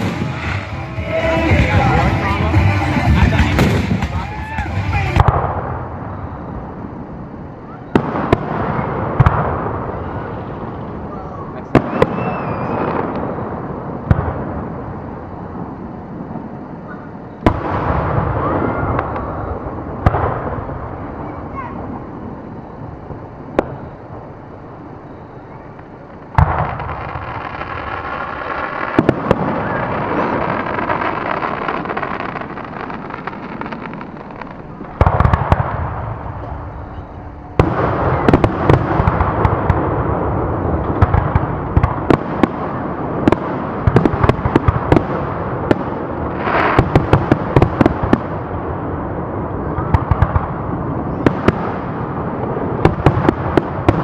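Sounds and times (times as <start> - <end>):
firework crackle of rapid pops: 0.0 - 6.0, 25.5 - 37.0, 37.6 - 48.5, 49.7 - 54.0
firework bangs: 0.0 - 54.0.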